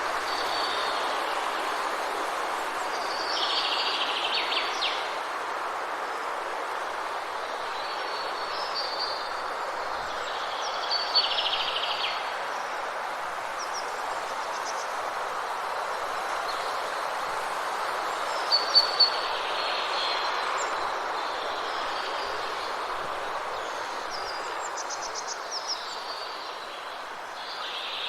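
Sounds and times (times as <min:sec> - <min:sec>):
steady rushing hiss: 0:00.0 - 0:10.6.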